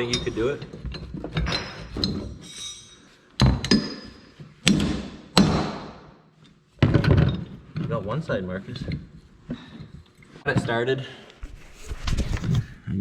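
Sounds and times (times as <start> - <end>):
hammer striking steel punch: 4.7 - 6.1.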